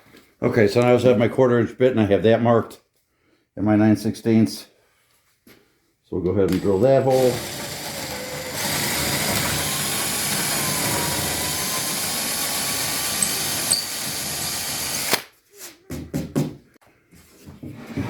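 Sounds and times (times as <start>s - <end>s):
power drill boring into wood: 6.5s - 15.3s.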